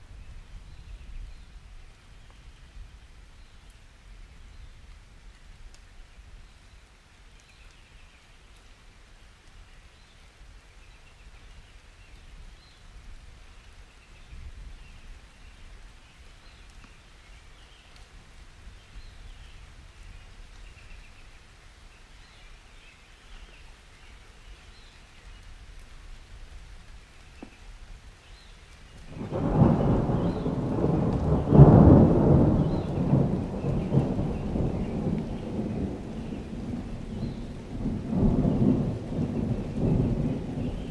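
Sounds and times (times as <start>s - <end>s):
light rain: 0.0s - 40.9s
thunder clap rolling: 29.1s - 40.9s.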